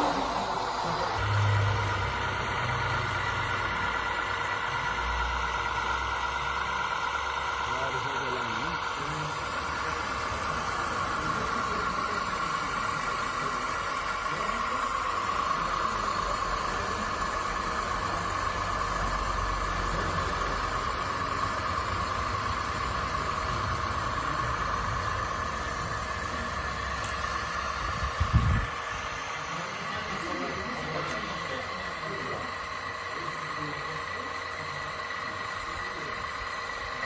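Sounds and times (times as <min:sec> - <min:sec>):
low engine-like hum: 0:00.0 - 0:37.0
steady mechanical whine: 0:00.0 - 0:37.0.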